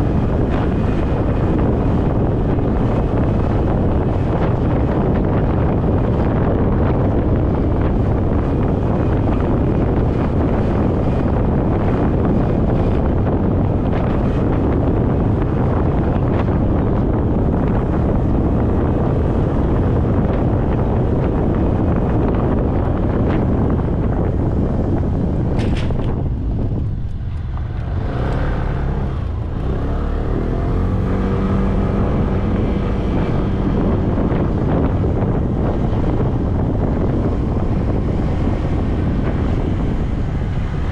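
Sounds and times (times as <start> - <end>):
wind rushing on microphone: 0.0 - 40.9
motorcycle engine: 25.2 - 40.9.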